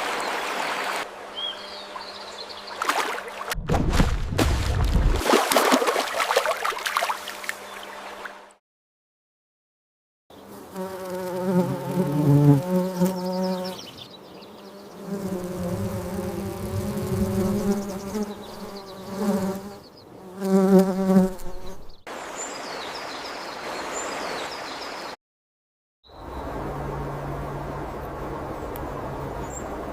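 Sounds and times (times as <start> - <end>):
flying insect buzzing: 10.4 - 22.0.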